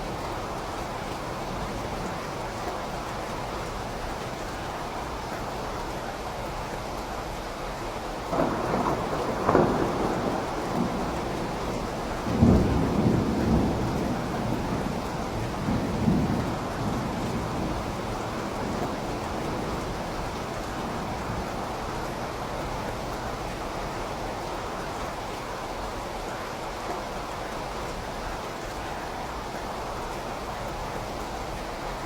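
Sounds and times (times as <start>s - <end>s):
steady rain: 0.0s - 32.0s
rolling thunder: 8.3s - 24.4s.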